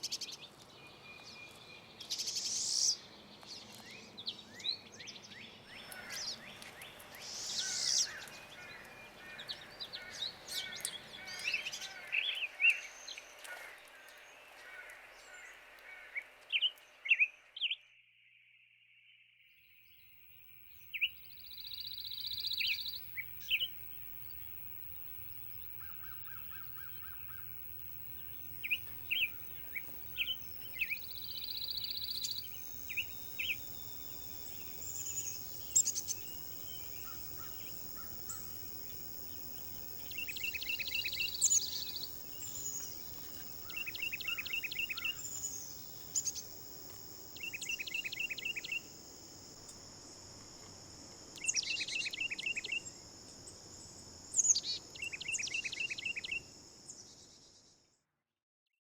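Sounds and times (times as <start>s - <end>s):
songbirds chirping: 19.8s - 49.5s
buzzy bird trills: 21.0s - 48.9s
high background drone: 21.2s - 48.6s.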